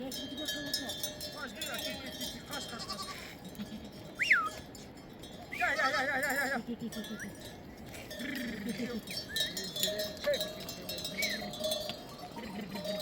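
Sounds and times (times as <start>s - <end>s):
sheep bleat: 2.7s - 3.4s.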